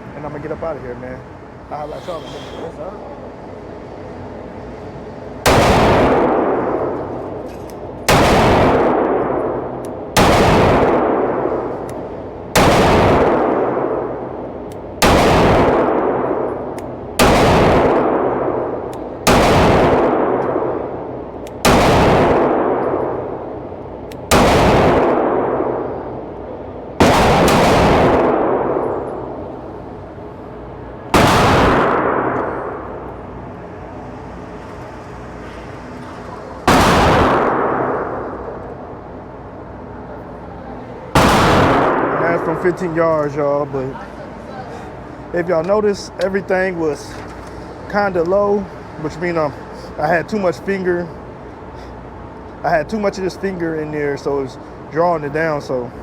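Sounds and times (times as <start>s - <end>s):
pistol shots with long echo: 5.4s - 33.4s, 36.6s - 39.7s, 41.1s - 43.8s.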